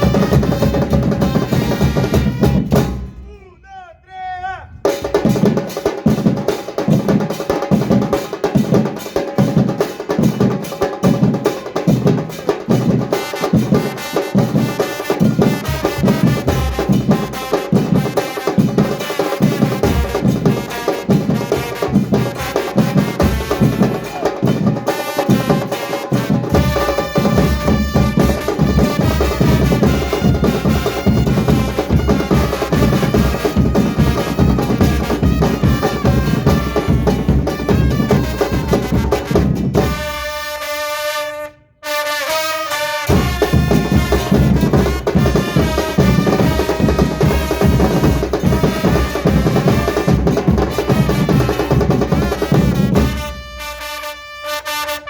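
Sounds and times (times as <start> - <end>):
bass drums and percussion: 0.0 - 3.5, 4.8 - 40.3, 43.1 - 53.8
pitched instruments or voices: 3.1 - 4.9, 23.8 - 26.4.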